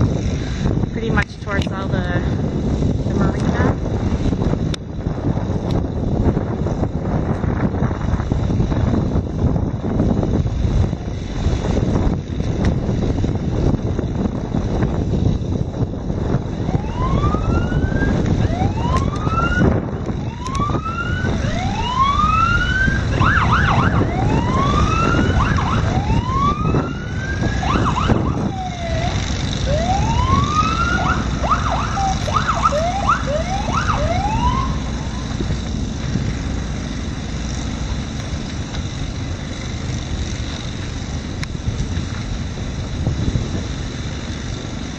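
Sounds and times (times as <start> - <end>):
wind noise on microphone: 0.0 - 44.9
emergency siren whooping: 16.3 - 35.6.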